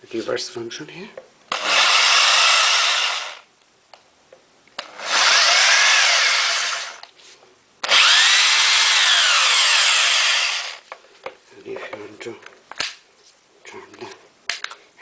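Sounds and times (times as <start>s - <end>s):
hammer drill motor whine: 1.5s - 3.5s, 4.8s - 7.0s, 7.8s - 10.8s.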